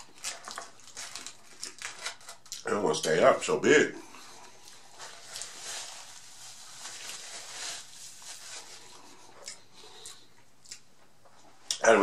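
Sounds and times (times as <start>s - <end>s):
crunching taco chewing: 0.0s - 2.7s, 8.8s - 10.9s
paper napkin rustling: 4.7s - 9.3s.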